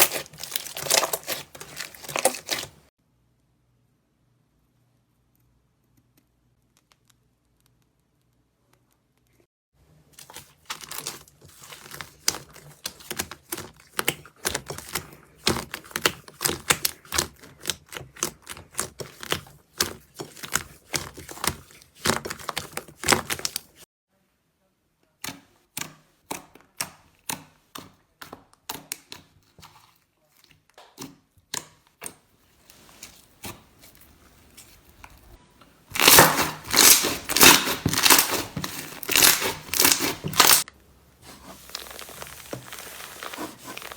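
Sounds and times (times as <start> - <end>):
loud dense crunching: 0.0 - 2.9, 35.9 - 40.7
slime popping and crackling: 0.0 - 2.9, 35.9 - 40.7, 41.6 - 43.9.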